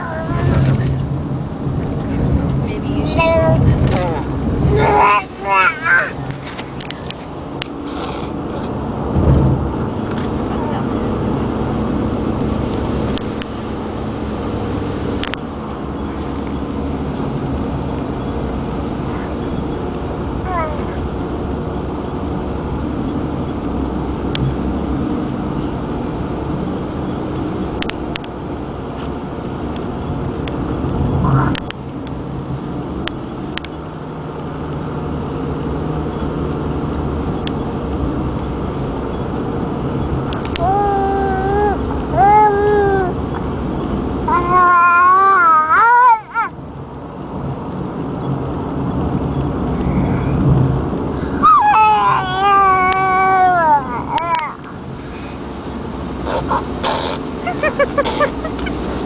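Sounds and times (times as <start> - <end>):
steady rumble and hiss: 0.0 - 59.0
baby squeaking: 56.2 - 58.8.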